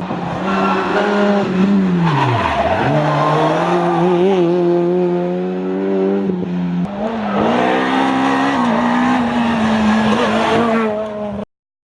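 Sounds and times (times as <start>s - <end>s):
rally car engine revving: 0.0s - 11.4s.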